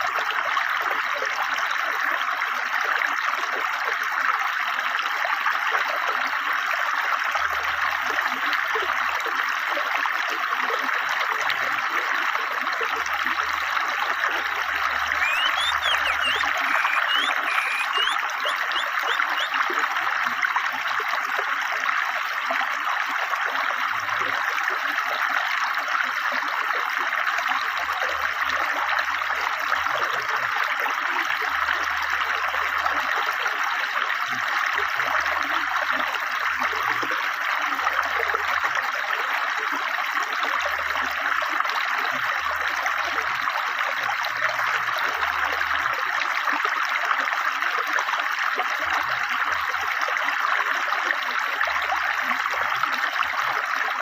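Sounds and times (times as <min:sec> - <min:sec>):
bird chirping: 0:15.2 - 0:19.5
river water rushing: 0:15.2 - 0:19.5.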